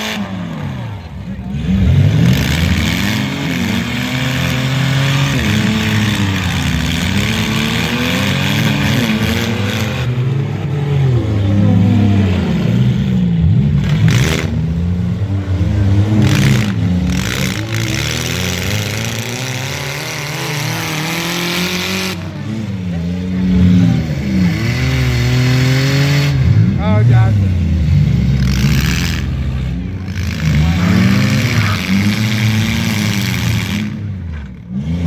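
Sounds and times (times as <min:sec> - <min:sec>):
car engines revving: 0:00.0 - 0:35.0.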